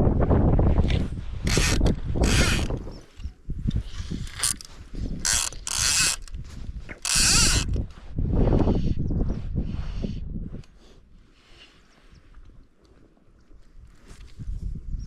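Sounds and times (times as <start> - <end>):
fishing reel ratchet buzzing: 1.5 - 2.8, 4.2 - 6.4, 7.0 - 7.8.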